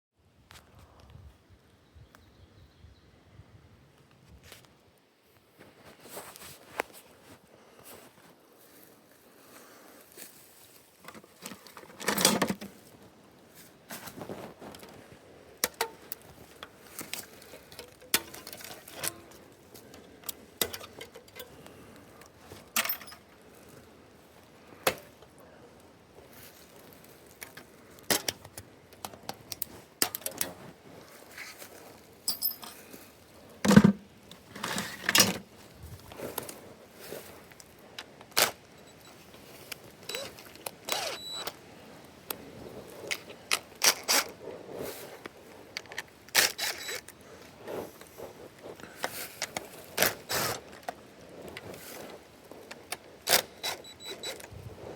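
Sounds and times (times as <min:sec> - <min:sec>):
small parts and tools clinking: 0:15.6 - 0:23.4, 0:32.2 - 0:35.5, 0:38.3 - 0:41.6, 0:45.8 - 0:47.2.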